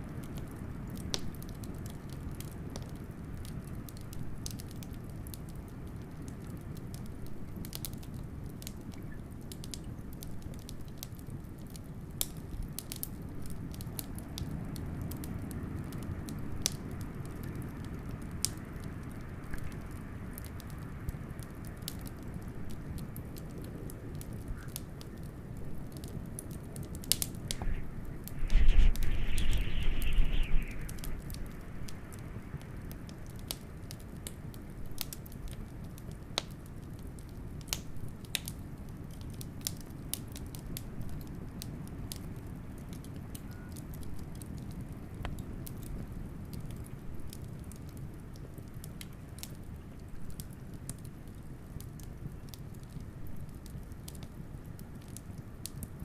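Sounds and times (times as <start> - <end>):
wood fire crackling and popping: 0.0 - 56.0
blizzard wind: 26.3 - 34.0
burst of hiss and rumble: 27.2 - 32.9.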